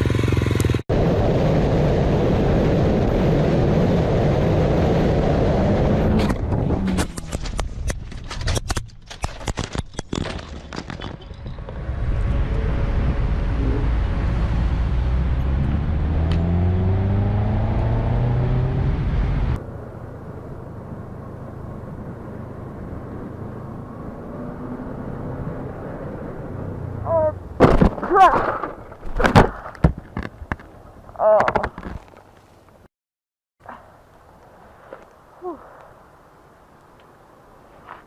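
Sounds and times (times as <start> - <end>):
motorcycle engine accelerating: 0.0 - 7.5, 11.6 - 20.2.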